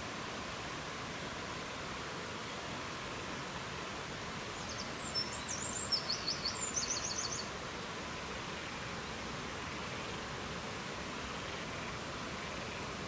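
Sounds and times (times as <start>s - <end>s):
songbird singing with trill: 4.6s - 7.5s.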